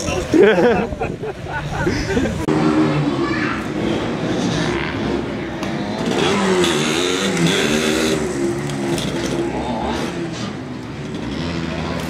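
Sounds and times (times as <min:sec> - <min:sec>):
two-stroke motorcycle engine revving: 0:02.4 - 0:12.0.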